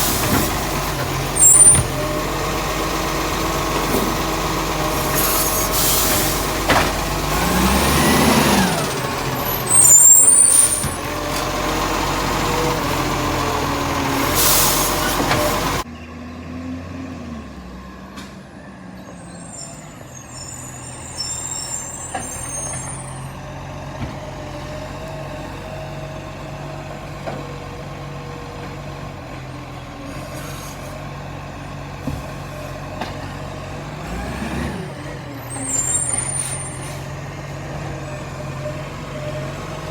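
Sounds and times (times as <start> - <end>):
garbage truck diesel engine: 0.0 - 39.9
air-brake hiss: 5.0 - 6.6, 14.2 - 15.8.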